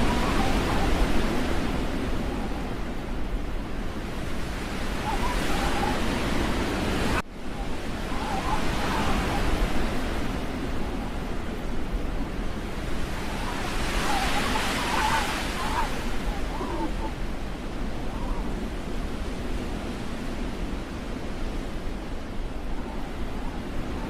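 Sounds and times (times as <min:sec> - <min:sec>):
rushing wind noise: 0:00.0 - 0:24.0.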